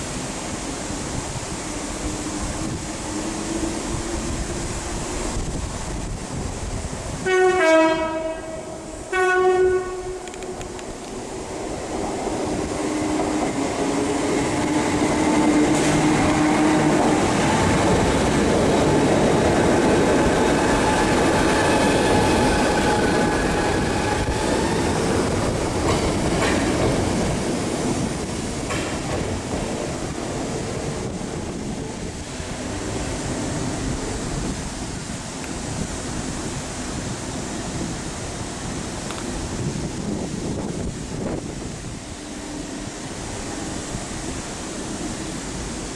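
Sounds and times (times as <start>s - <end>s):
train wheels on rails: 0.0s - 45.9s
two-tone train horn: 7.2s - 10.8s.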